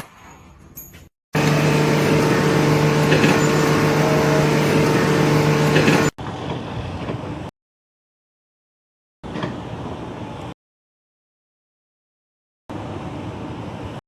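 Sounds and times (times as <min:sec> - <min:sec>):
motor humming: 0:01.4 - 0:06.2
noisy wash: 0:01.4 - 0:06.2.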